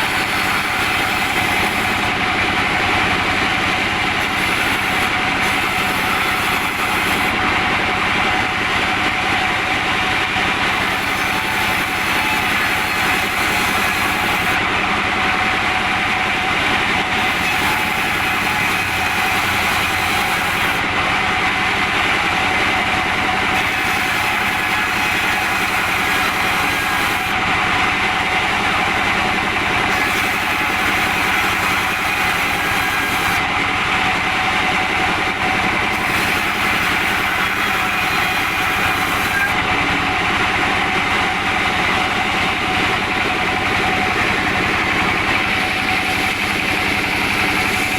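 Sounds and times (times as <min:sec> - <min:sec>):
saw whine: 0:00.0 - 0:47.9
sawmill machinery drone: 0:00.0 - 0:47.9.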